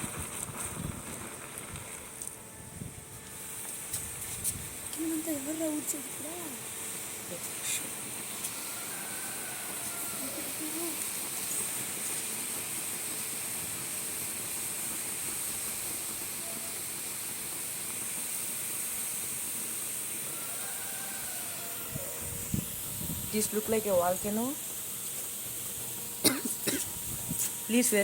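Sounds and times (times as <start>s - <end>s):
foil fizzing in solution: 0.0s - 2.4s, 3.2s - 28.0s.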